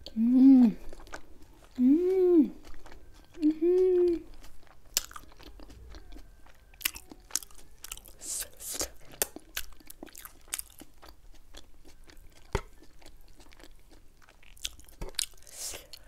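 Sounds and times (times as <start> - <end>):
wet chewing and crunching: 0.8 - 16.0.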